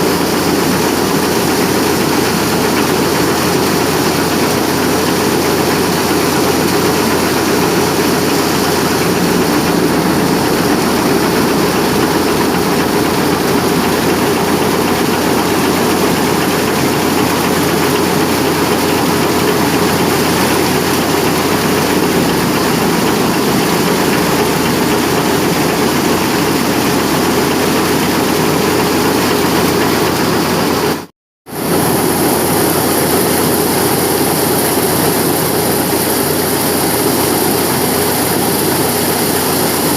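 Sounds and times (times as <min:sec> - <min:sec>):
threshing drum din: 0:00.0 - 0:30.1
tractor engine: 0:00.0 - 0:39.9.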